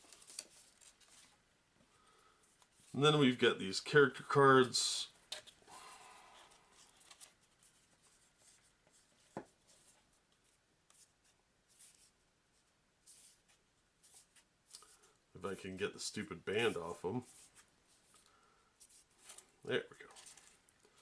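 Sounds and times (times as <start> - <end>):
cards rustling and scraping: 0.0 - 1.5, 5.3 - 15.2, 16.5 - 21.0.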